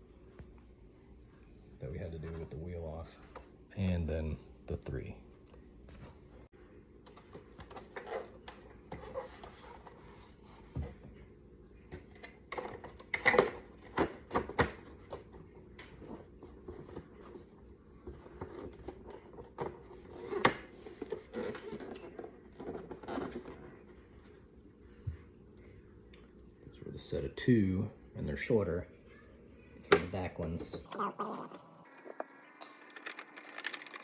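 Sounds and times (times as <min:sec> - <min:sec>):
plastic parts rubbing and clicking: 0:32.2 - 0:34.0.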